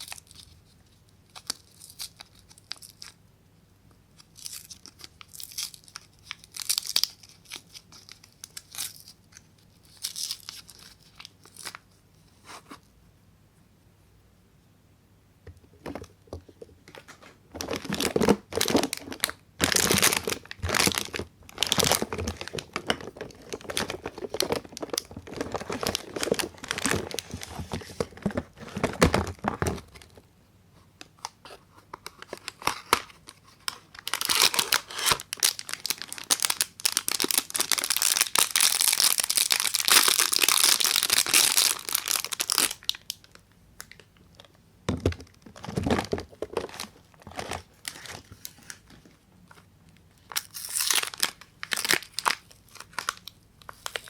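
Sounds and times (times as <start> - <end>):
wrapper crinkling and tearing: 0.0 - 3.2, 4.2 - 11.8, 17.0 - 30.2, 32.0 - 44.0, 45.1 - 49.0, 50.2 - 54.0.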